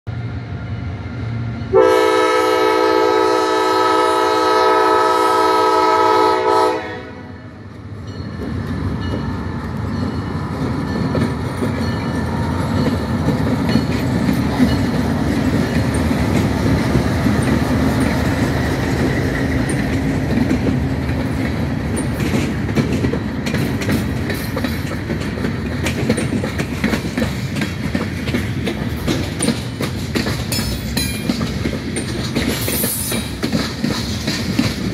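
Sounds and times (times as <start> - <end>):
train engine rumble: 0.1 - 34.9
locomotive air horn blast: 1.7 - 7.4
wheels clicking over rail joints: 8.0 - 34.9.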